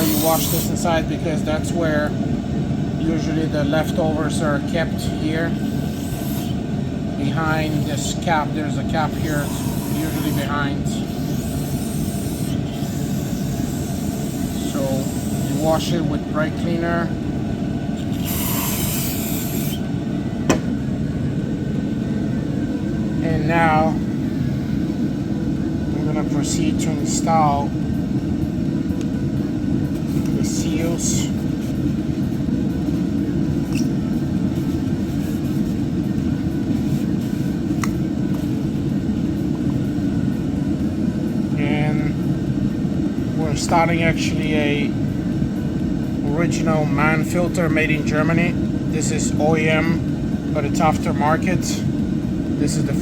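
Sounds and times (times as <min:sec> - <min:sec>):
aerosol spray hissing: 0:00.0 - 0:00.8, 0:05.6 - 0:06.6, 0:09.1 - 0:10.5, 0:11.1 - 0:15.8, 0:18.2 - 0:19.8
low rumbling background noise: 0:00.0 - 0:53.0.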